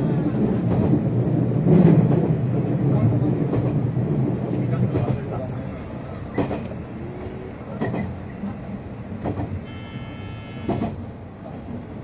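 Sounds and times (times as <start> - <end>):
train running rumble: 0.0 - 12.0
wheels clacking over rail joint: 6.1 - 6.9, 7.7 - 8.2, 9.1 - 11.1
high steady tone: 9.6 - 10.8.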